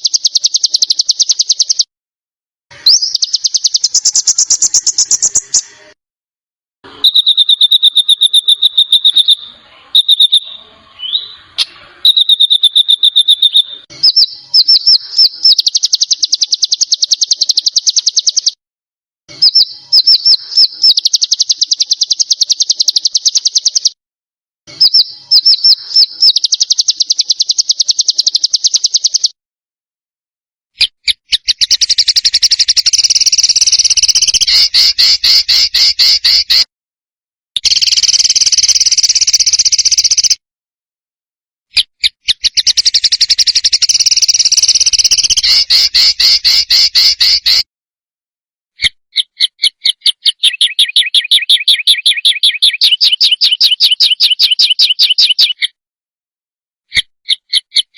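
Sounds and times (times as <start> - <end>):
harsh rasping bird trill: 0.0 - 1.9, 2.7 - 5.7, 6.9 - 18.6, 19.3 - 24.0, 24.7 - 29.4, 30.8 - 36.7, 37.6 - 40.4, 41.7 - 47.7, 48.8 - 55.8
songbird trilling: 0.0 - 1.9, 2.8 - 5.7, 7.0 - 18.6, 19.4 - 24.0, 24.8 - 29.3, 31.3 - 36.6, 42.3 - 47.6, 49.2 - 55.7.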